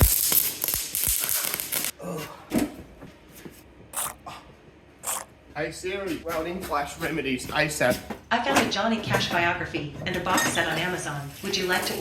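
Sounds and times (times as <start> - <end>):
electric welding arc crackling: 0.0 - 1.9
person groaning: 1.9 - 2.5, 4.0 - 5.3.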